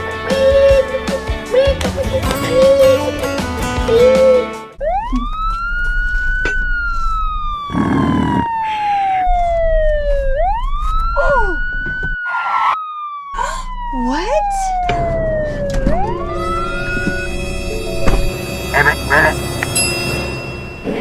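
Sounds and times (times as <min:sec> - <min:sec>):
guitar music: 0:01.2 - 0:04.6, 0:14.9 - 0:20.5
siren wailing: 0:04.8 - 0:19.4.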